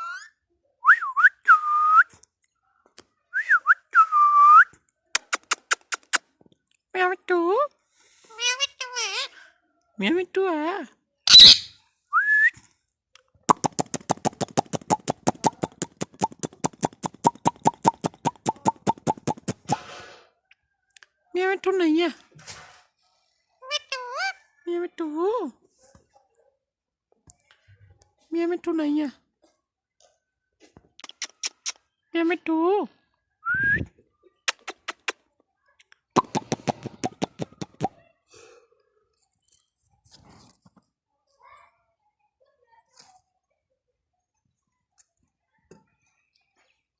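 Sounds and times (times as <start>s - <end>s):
parrot clicking chatter: 5.2s - 6.2s, 11.3s - 11.7s, 13.5s - 19.8s, 31.0s - 31.8s, 34.5s - 35.2s, 36.2s - 37.9s
parrot rising whistle: 11.3s - 11.7s
parrot rapid clicks: 34.5s - 35.2s.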